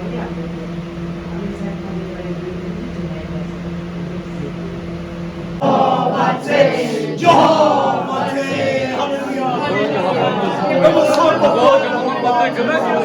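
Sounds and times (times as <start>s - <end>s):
steady low hum: 0.0s - 13.0s
group of people singing: 5.6s - 13.0s.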